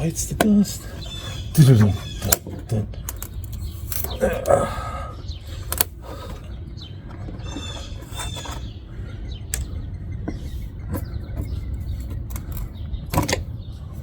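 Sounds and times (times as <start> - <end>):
birds chirping faintly: 0.0 - 14.0
sharp clicks and knocks: 5.7 - 6.4, 9.5 - 13.6.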